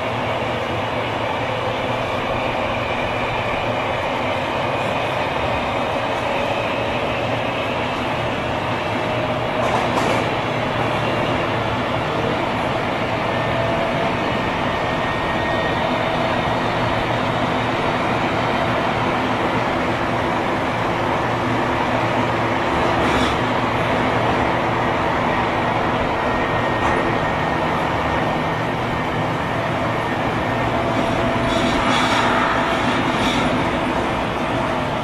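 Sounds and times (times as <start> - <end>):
train running noise: 0.0 - 35.0
brief clatter: 9.6 - 10.3.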